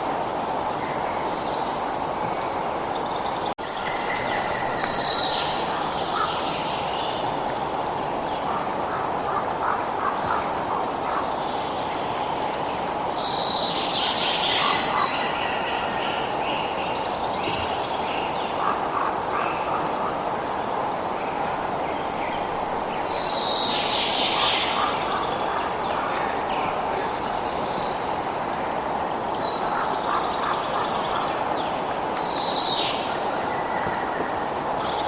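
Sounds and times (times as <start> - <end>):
flowing water: 0.0 - 35.0
birds calling and chirping: 22.1 - 28.3.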